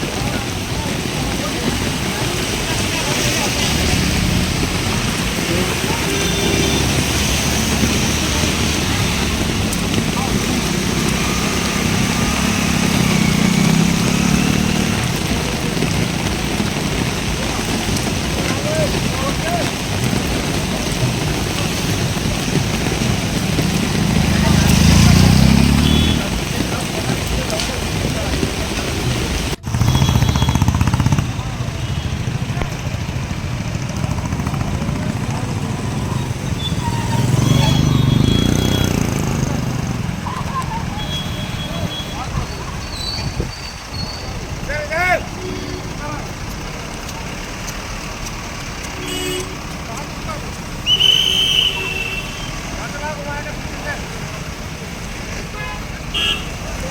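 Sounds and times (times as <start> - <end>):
faint voices: 0.0 - 29.7
vehicle engine running: 0.0 - 42.8.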